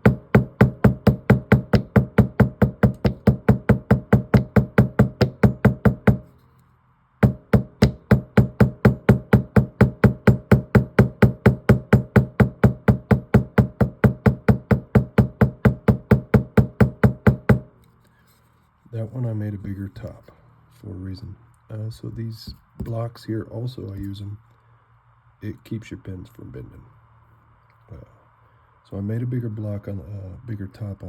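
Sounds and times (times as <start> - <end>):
small hammer tapping metal: 0.0 - 6.3, 7.2 - 17.6.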